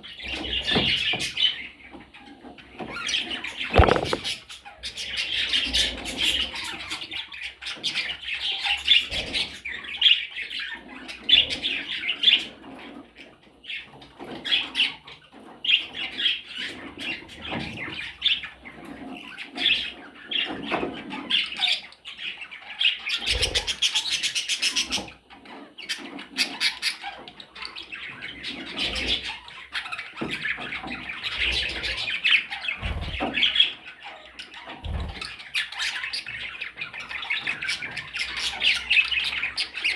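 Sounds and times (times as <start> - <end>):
small parrots chirping and squawking: 0.1 - 39.9
soft thumps: 3.7 - 4.4.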